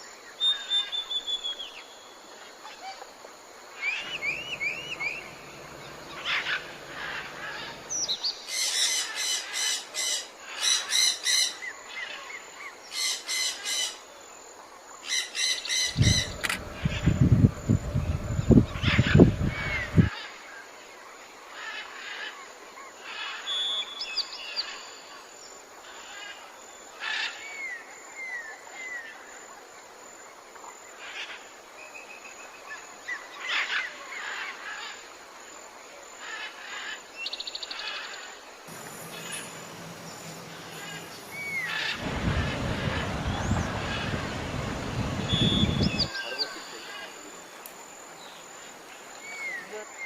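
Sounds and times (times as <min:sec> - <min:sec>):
outdoor hiss: 0:00.0 - 0:22.2, 0:34.3 - 0:50.0
birds chirping and trilling: 0:03.8 - 0:14.0, 0:15.1 - 0:20.4, 0:36.3 - 0:47.5
loud rushing noise: 0:38.7 - 0:46.1.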